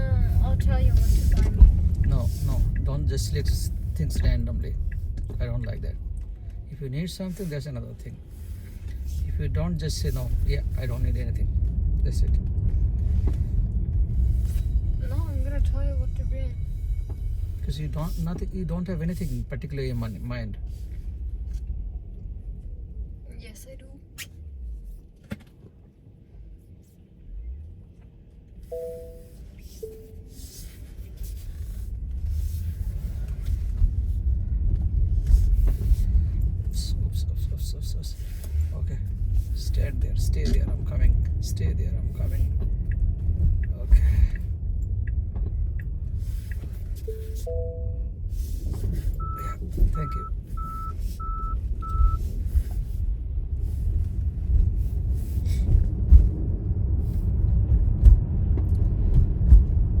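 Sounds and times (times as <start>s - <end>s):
road rumble inside car: 0.0s - 60.0s
electronic beep: 28.7s - 30.3s, 49.2s - 52.2s.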